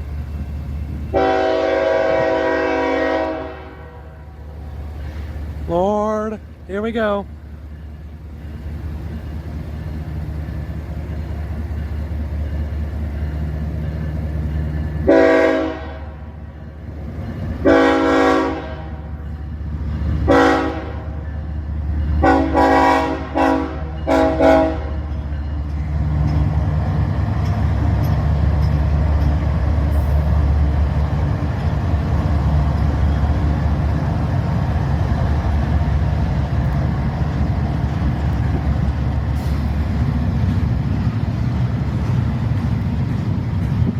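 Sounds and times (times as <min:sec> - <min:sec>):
diesel locomotive engine rumble: 0:00.0 - 0:43.9
train wheel noise: 0:00.0 - 0:43.9
train horn blasts: 0:01.1 - 0:04.4, 0:15.0 - 0:16.3, 0:17.6 - 0:19.1, 0:20.2 - 0:21.2, 0:22.2 - 0:25.1.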